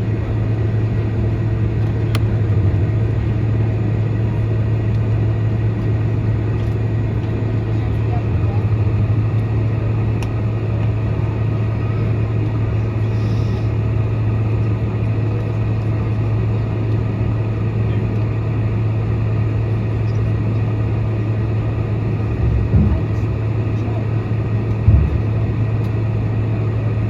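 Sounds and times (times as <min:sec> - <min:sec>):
airplane cabin drone: 0:00.0 - 0:27.0.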